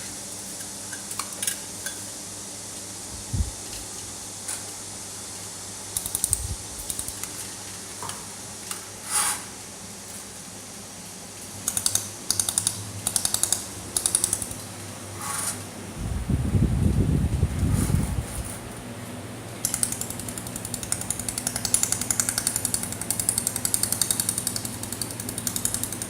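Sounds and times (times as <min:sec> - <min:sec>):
low machine hum: 0:02.2 - 0:08.6, 0:12.2 - 0:26.0
welding machine clicking pulses: 0:05.9 - 0:07.3, 0:11.6 - 0:14.6, 0:19.6 - 0:26.0.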